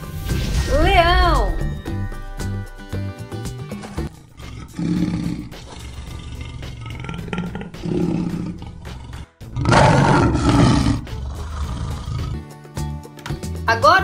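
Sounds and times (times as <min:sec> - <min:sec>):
background music: 0:00.0 - 0:14.0
lion roaring: 0:04.1 - 0:12.5.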